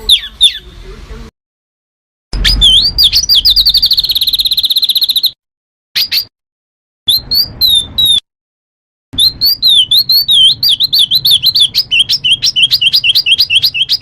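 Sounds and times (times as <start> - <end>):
songbird trilling and whistling: 0.0 - 0.7, 2.4 - 5.4, 6.0 - 6.3, 7.1 - 8.2, 9.2 - 14.0.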